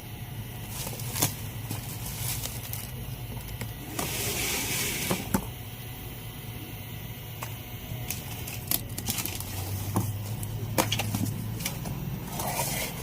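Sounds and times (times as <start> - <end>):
steady low hum: 0.0 - 13.0
plastic wrapping rustling: 0.6 - 5.3, 8.0 - 13.0.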